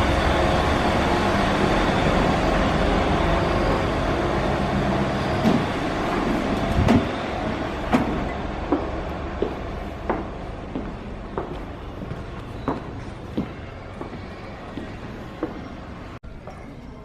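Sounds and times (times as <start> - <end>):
bus engine and road rumble: 0.0 - 16.2.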